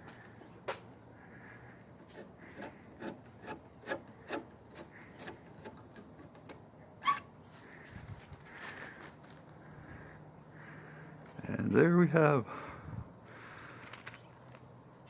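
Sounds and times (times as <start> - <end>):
brief rustle: 13.4 - 14.7.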